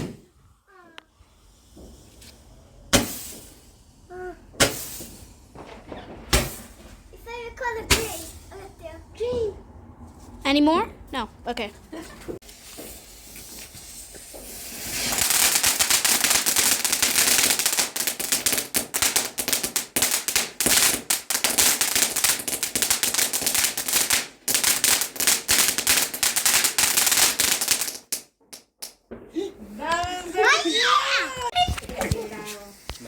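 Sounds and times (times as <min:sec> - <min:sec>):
firework crackling: 0:00.0 - 0:09.2, 0:12.4 - 0:29.0
faint hiss: 0:00.2 - 0:05.5, 0:12.4 - 0:22.4.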